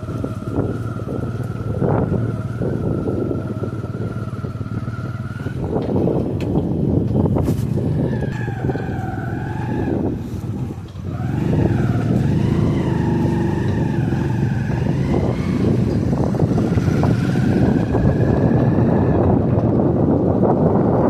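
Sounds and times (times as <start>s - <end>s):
wavering engine whine: 0.0s - 21.0s
heavy machine engine running: 10.0s - 21.0s.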